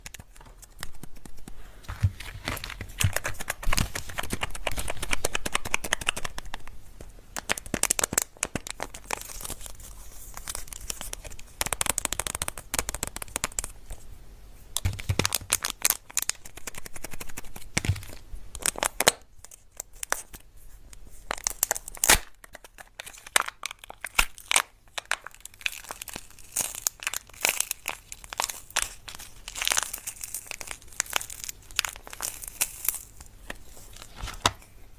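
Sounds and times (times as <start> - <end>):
wrappers tearing and crinkling: 21.2 - 34.8.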